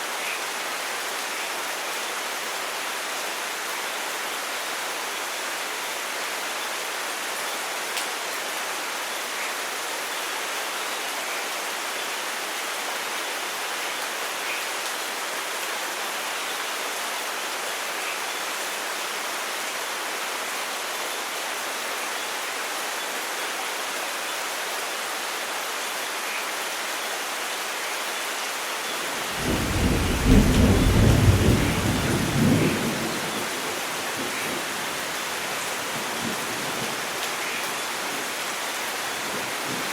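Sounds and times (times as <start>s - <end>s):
steady rain falling: 0.0s - 39.9s
thunderclap rumbling: 29.4s - 33.4s.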